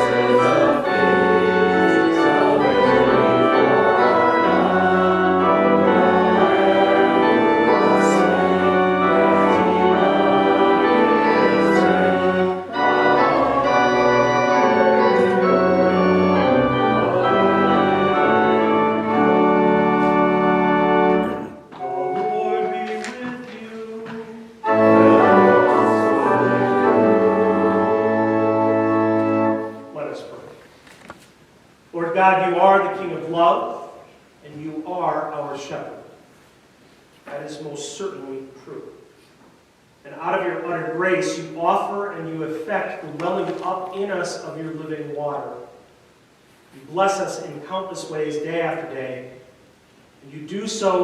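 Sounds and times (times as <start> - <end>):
pipe organ playing chords: 0.0 - 30.7, 40.1 - 45.8.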